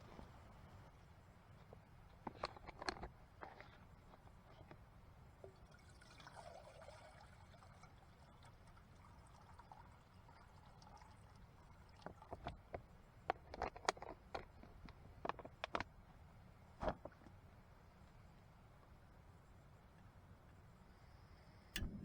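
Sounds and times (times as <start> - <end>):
light clicks and knocks: 1.6 - 4.8, 12.0 - 15.9
liquid trickling: 5.4 - 12.5.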